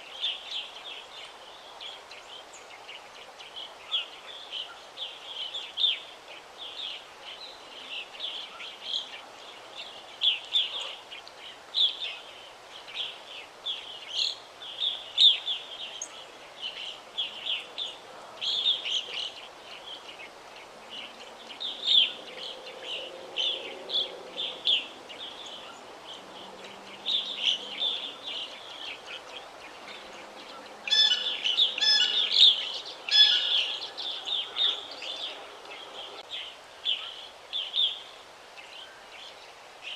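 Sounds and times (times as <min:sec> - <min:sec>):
faint background hiss: 0:00.0 - 0:39.9
birds chirping and trilling: 0:21.5 - 0:36.3
bird repeated calls: 0:30.9 - 0:36.2.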